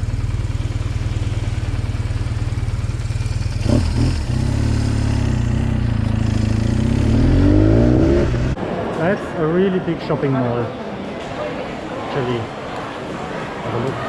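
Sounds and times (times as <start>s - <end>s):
motorcycle engine accelerating: 0.0s - 8.6s.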